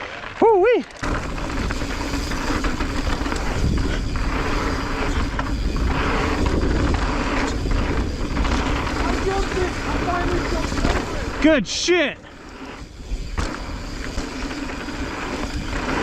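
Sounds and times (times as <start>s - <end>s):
bike tyres rattling over dirt: 0.0s - 16.0s
wind rumble on microphone: 1.0s - 11.4s.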